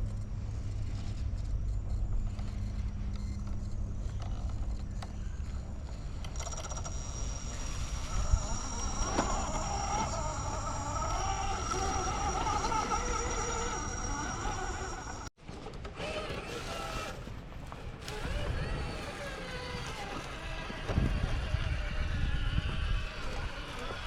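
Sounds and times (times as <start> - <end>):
electric motor whining: 3.2 - 24.0
wind rumble on microphone: 17.5 - 24.0.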